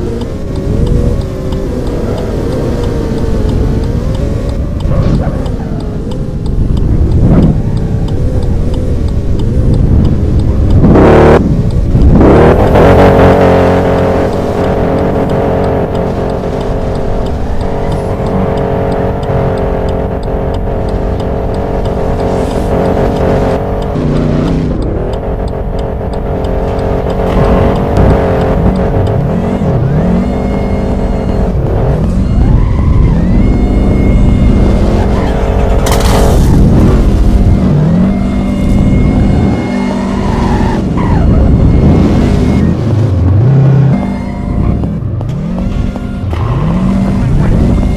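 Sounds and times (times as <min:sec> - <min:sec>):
car engines revving: 0:00.0 - 0:47.9.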